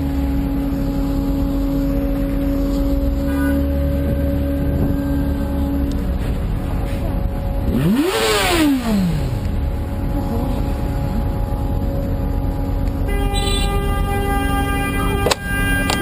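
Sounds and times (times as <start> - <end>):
engine revving: 0.0 - 16.0
traffic rumble: 0.0 - 16.0
car horn sounding: 13.0 - 16.0.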